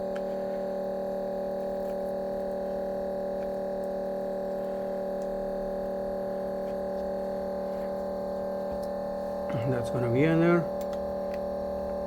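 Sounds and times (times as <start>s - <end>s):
steady multi-pitch hum: 0.0s - 12.0s.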